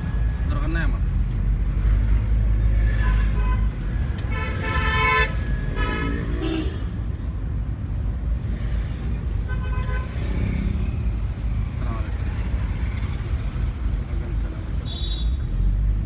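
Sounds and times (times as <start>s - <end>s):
car engine and road noise: 0.0s - 16.0s
vehicle horns honking: 2.8s - 7.2s, 9.4s - 10.5s, 14.8s - 15.6s.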